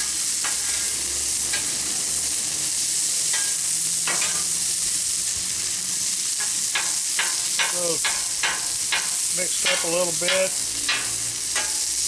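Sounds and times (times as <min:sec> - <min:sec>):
food sizzling on a griddle: 0:00.0 - 0:12.0.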